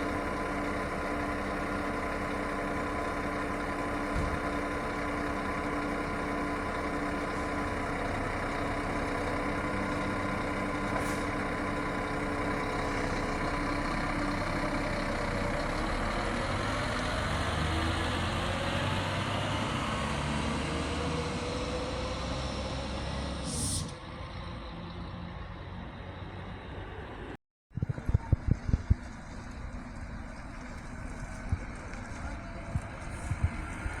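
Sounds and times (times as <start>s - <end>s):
diesel engine running: 0.0s - 34.0s
air brake hissing: 10.7s - 11.6s, 23.4s - 24.1s.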